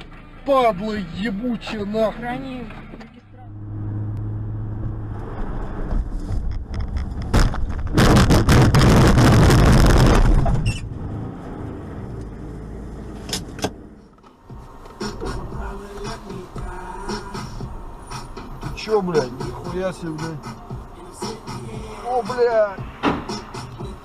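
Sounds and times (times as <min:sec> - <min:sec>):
car engine running: 0:00.0 - 0:24.0
car collision crash: 0:07.2 - 0:10.8.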